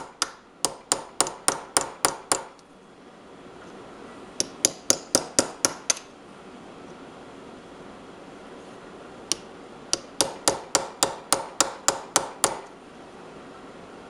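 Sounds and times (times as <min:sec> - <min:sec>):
hammer tapping metal punch: 0:00.0 - 0:02.6, 0:04.4 - 0:06.1, 0:09.3 - 0:12.7.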